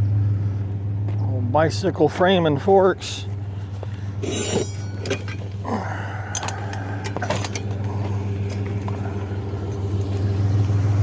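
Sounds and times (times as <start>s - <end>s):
truck engine idling: 0.0s - 11.0s
scrap metal clanking: 4.2s - 5.6s, 6.2s - 9.0s.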